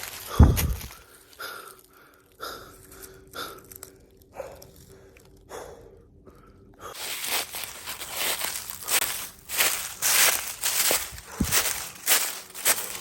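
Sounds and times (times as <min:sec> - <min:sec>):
footsteps crunching dry leaves: 0:00.0 - 0:01.3, 0:07.0 - 0:13.0
man breathing hard: 0:00.0 - 0:07.3, 0:10.7 - 0:11.9.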